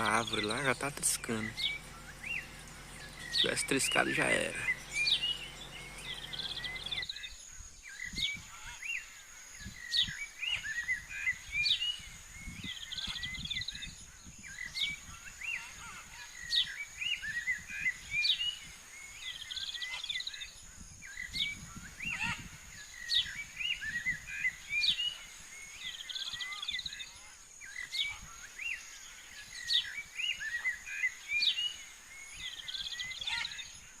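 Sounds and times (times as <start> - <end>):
faint low rumbles: 0.0 - 7.0
birds singing and chirping: 0.0 - 34.0.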